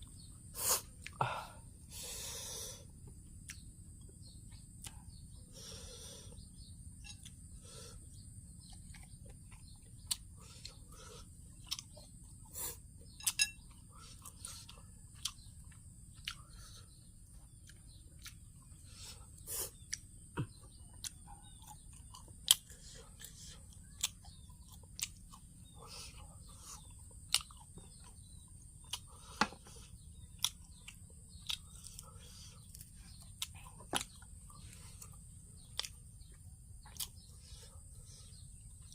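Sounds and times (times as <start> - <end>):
chewing and crunching: 2.9 - 5.3, 6.3 - 38.9
mouth clicks and smacks: 3.4 - 3.7, 35.0 - 37.3.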